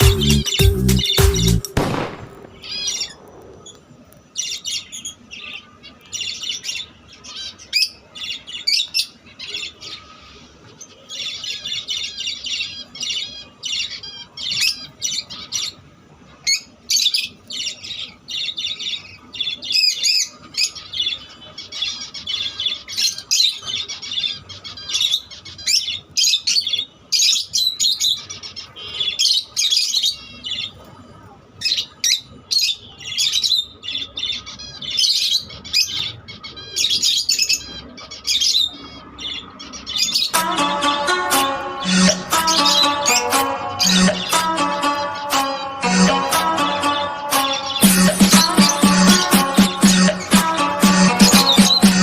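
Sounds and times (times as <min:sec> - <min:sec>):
lovebirds chirping: 0:00.0 - 0:03.8, 0:39.3 - 0:52.0.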